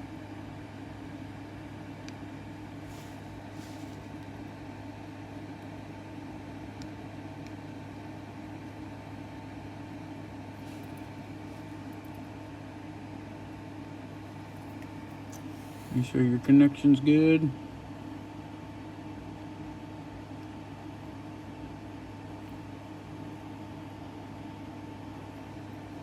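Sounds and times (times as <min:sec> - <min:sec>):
electrical fan hum: 0:00.0 - 0:26.0.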